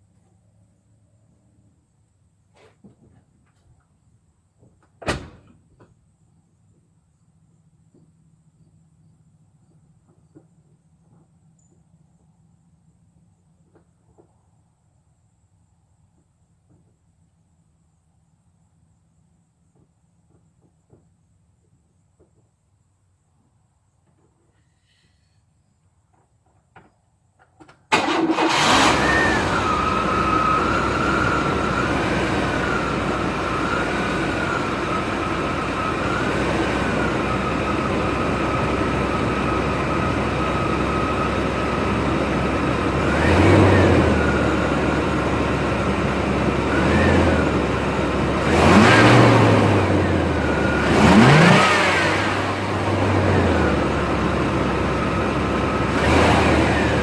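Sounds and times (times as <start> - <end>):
truck engine starting and idling: 27.9 - 57.0
engine revving: 28.0 - 57.0.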